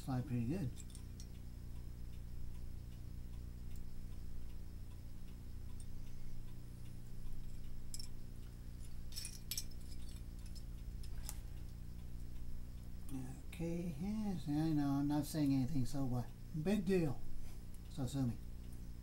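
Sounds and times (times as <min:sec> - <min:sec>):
clock ticking: 0:00.0 - 0:08.6, 0:10.3 - 0:19.0
low electrical hum: 0:00.0 - 0:19.0.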